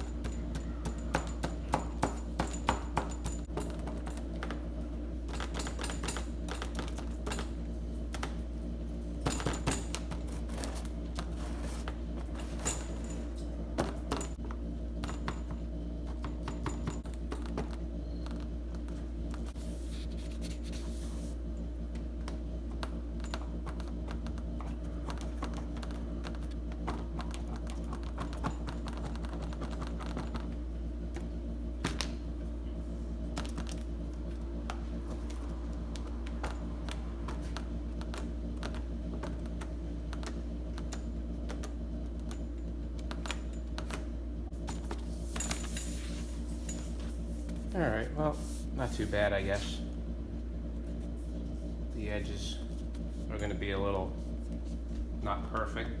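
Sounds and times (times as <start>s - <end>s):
steady low hum: 0.0s - 56.0s
hands smoothing vinyl sheet: 19.5s - 21.4s.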